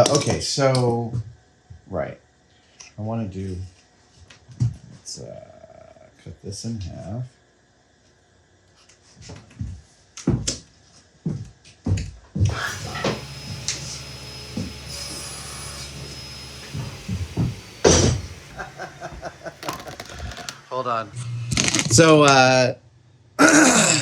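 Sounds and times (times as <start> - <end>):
power saw cutting: 12.5 - 21.4.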